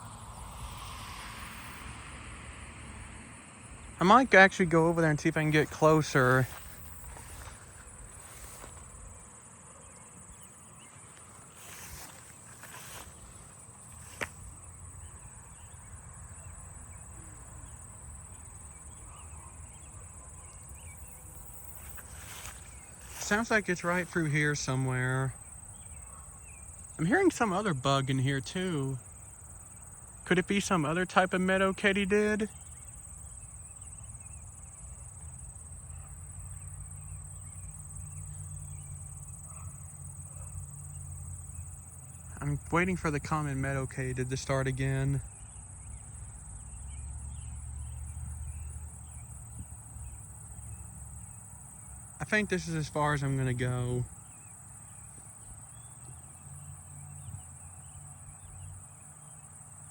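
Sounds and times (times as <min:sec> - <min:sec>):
low background rumble: 0:00.0 - 0:07.1
faint chirps: 0:00.0 - 0:09.0
high-pitched insect trill: 0:00.0 - 0:59.9.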